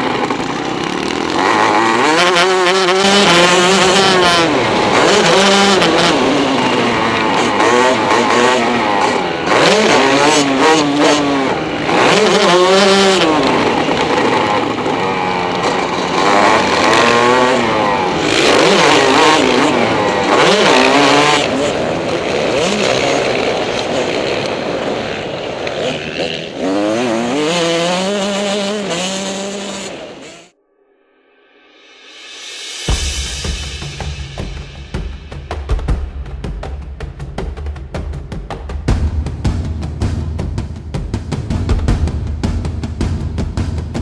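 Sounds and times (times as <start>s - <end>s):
dirt bike engine revving: 0.0s - 30.5s.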